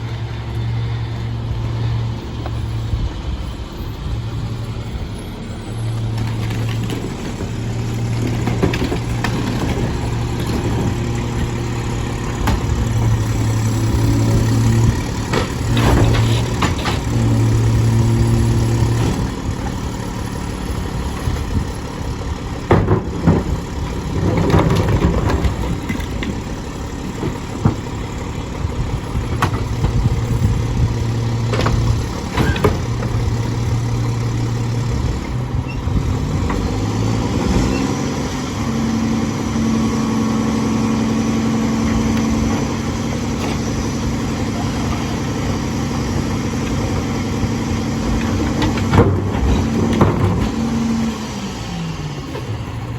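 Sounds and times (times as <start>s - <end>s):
truck diesel engine: 0.0s - 52.9s
knocks and clatters: 6.0s - 20.4s, 22.5s - 37.0s, 47.7s - 51.0s.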